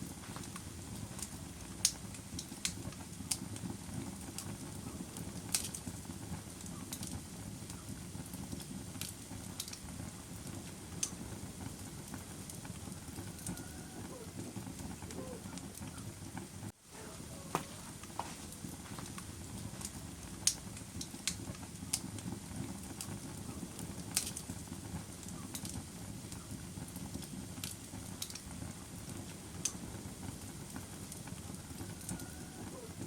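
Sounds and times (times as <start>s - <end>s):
fire crackling and popping: 0.0s - 33.0s
rush of fire flames: 0.0s - 33.0s.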